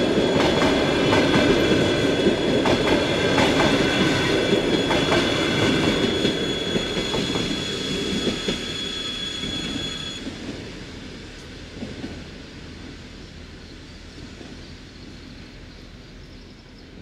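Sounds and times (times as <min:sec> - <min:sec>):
high steady squeal: 0:00.0 - 0:10.4
train wheels clattering on rails: 0:00.0 - 0:12.9.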